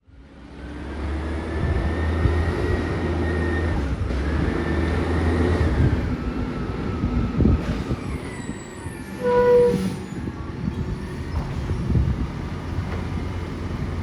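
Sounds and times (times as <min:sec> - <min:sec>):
garbage truck engine hum: 0:10.4 - 0:14.0.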